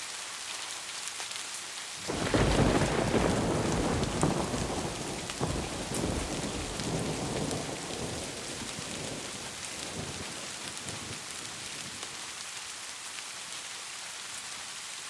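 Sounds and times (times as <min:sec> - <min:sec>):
rain hissing: 0:00.0 - 0:15.0
low thunder rumble: 0:02.1 - 0:12.1.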